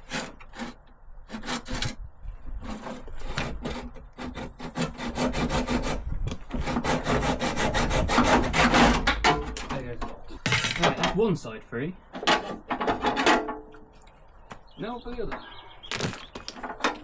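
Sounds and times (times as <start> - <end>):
hacksaw cutting through bolt: 0.0 - 2.0, 2.6 - 9.6.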